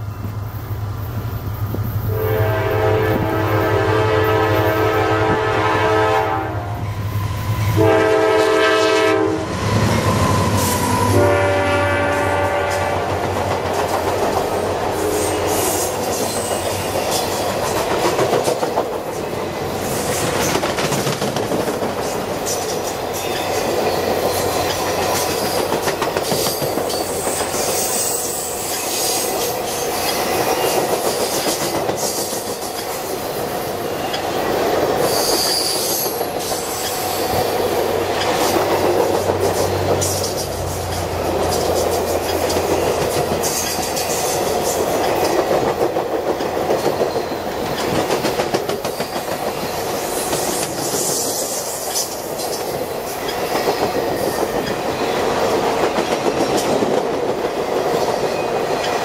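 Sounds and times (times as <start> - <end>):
train cars rushing past: 0.0 - 59.0
locomotive air horn blasts: 2.1 - 6.8, 7.4 - 13.2
wheels clacking over rail joints: 13.1 - 28.0, 34.0 - 59.0.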